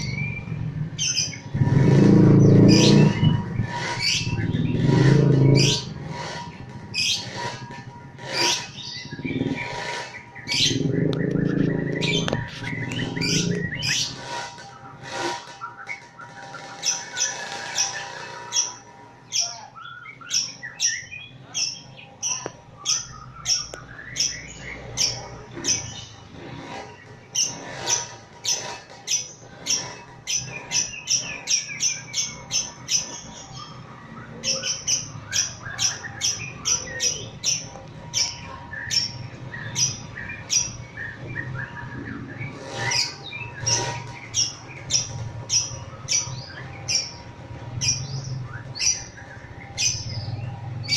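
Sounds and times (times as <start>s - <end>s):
lovebird chattering call: 8.2s - 14.4s.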